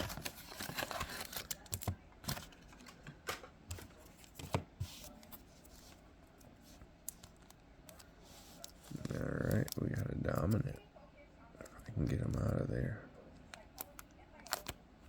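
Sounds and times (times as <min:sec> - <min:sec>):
cards rustling: 0:00.0 - 0:03.1, 0:03.7 - 0:10.8.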